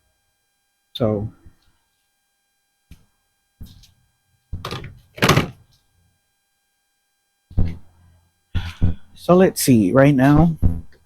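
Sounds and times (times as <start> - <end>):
dull thunks and knocks: 8.6 - 9.1.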